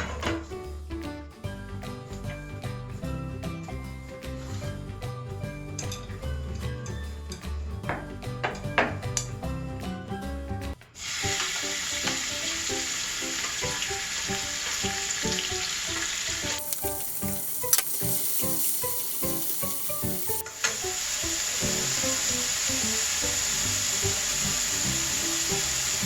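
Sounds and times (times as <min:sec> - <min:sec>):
light background music: 0:00.0 - 0:26.0
hot oil sizzling in a pan: 0:11.0 - 0:26.0.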